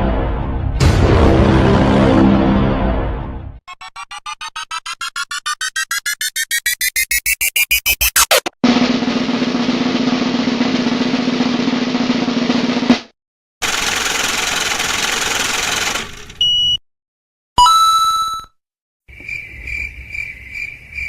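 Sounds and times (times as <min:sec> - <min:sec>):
drum roll riser: 0:00.7 - 0:03.1, 0:03.7 - 0:16.4.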